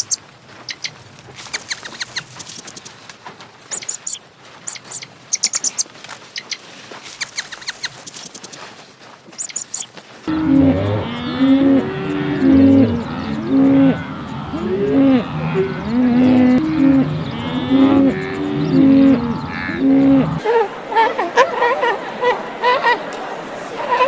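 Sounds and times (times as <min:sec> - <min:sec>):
chorus of animal calls: 0:09.4 - 0:24.0.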